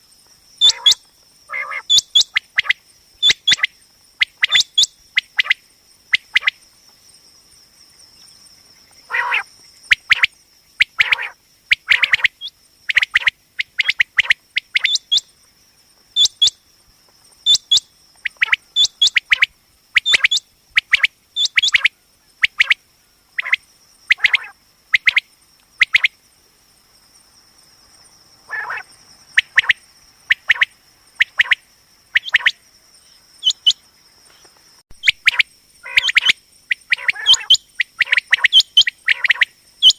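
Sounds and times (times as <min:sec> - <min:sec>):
quail calling: 0:00.6 - 0:05.6, 0:09.1 - 0:15.2, 0:16.2 - 0:16.6, 0:17.5 - 0:22.8, 0:23.4 - 0:25.2, 0:28.5 - 0:32.6, 0:33.4 - 0:33.8, 0:35.0 - 0:39.9.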